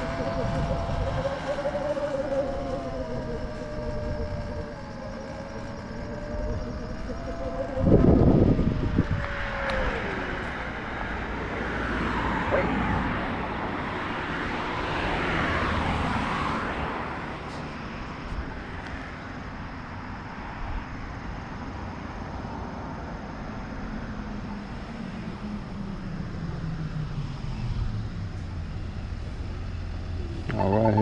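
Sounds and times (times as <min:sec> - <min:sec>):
vehicle passing: 0:00.0 - 0:19.3
low engine note: 0:00.0 - 0:19.6, 0:24.2 - 0:31.0
traffic hum: 0:00.0 - 0:31.0.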